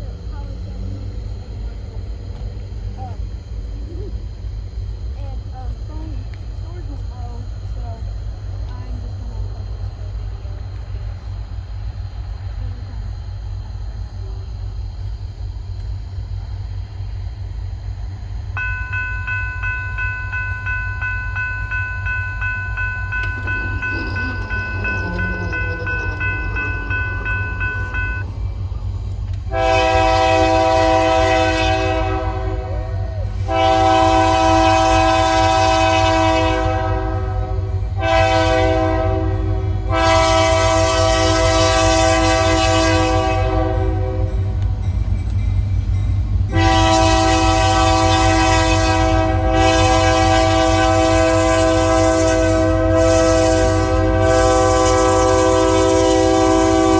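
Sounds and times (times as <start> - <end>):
steady high tone: 18.6 - 29.0
locomotive air horn blasts: 23.1 - 28.2, 29.5 - 44.6, 46.5 - 56.9
steady low rumble: 23.1 - 31.3.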